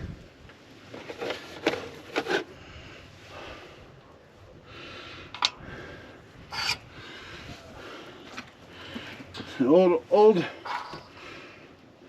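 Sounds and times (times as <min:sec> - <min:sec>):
rubbing and scraping sounds: 0:00.8 - 0:02.6, 0:06.5 - 0:06.8
brief rasp: 0:06.5 - 0:06.8.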